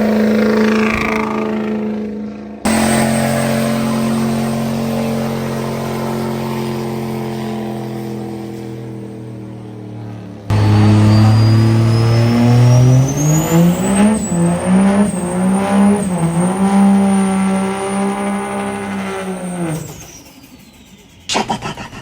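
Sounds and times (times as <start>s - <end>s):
truck engine accelerating: 0.0s - 22.0s
thin high whine: 2.7s - 9.9s, 10.5s - 21.4s.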